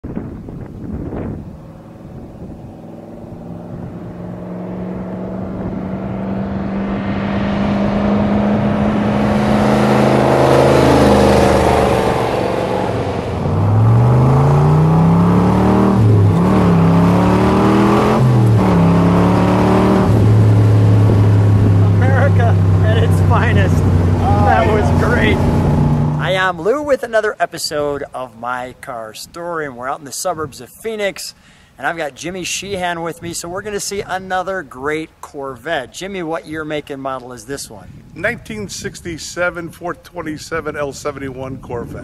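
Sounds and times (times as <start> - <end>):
car engine revving past: 1.0 - 26.5.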